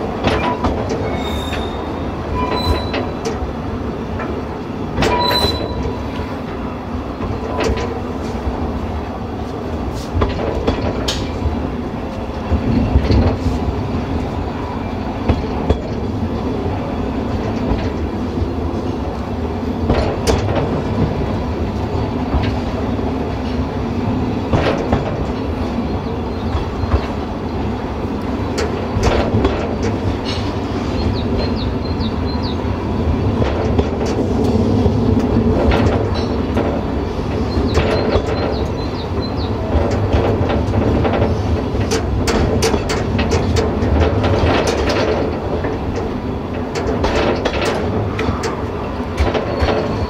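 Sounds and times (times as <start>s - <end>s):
train rolling with steady rumble: 0.0s - 50.0s
wheels clicking over rail joints: 0.0s - 50.0s
high squeaks: 1.0s - 3.2s, 5.1s - 6.0s.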